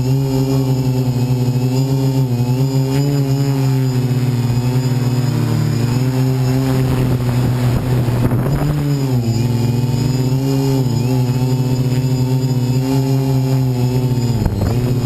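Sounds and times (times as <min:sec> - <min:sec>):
drone motors humming: 0:00.0 - 0:15.0
wind on microphone: 0:02.8 - 0:15.0.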